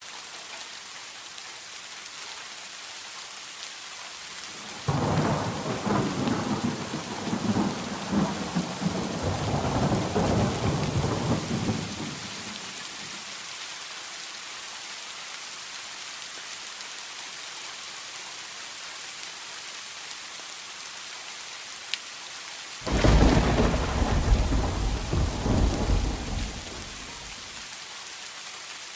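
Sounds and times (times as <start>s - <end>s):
steady rain: 0.0s - 28.9s
thunder claps and rumbling: 4.7s - 12.8s, 22.9s - 27.5s.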